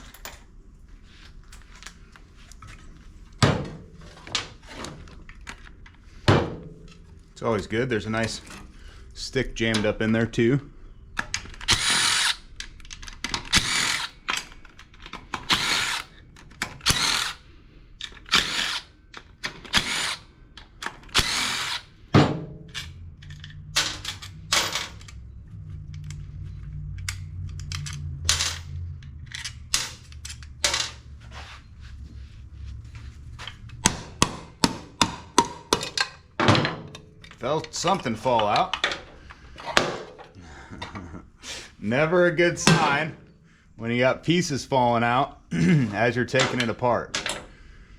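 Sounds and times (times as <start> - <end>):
cordless power tool bursts: 11.7 - 12.4, 13.5 - 14.2, 15.4 - 16.1, 16.8 - 17.4, 18.3 - 18.9, 19.6 - 20.2, 21.1 - 21.9.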